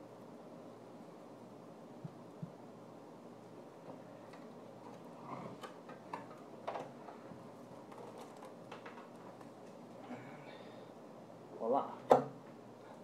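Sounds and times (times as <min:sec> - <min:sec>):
faint plastic clicks and cracks: 0:03.8 - 0:10.1.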